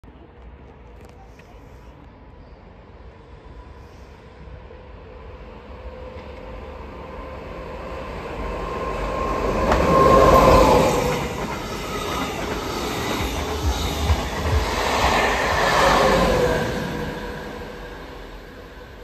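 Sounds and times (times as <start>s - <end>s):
wheels clattering on rails: 9.6s - 15.5s.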